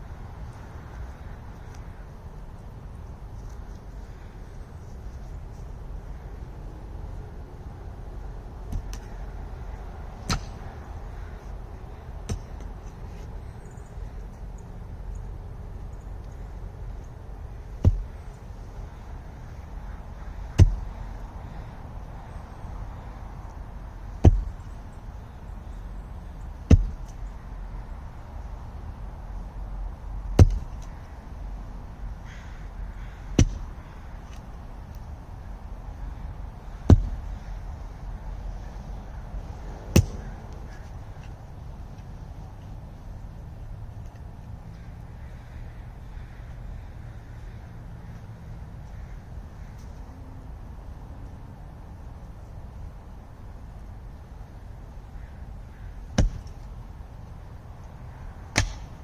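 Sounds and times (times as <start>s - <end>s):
hand tool chopping into roots: 10.2s - 10.6s, 17.8s - 18.2s, 20.5s - 20.9s, 24.2s - 24.5s, 26.7s - 27.2s, 30.4s - 30.9s, 33.3s - 33.7s, 36.8s - 37.3s, 39.9s - 40.8s, 58.5s - 59.0s.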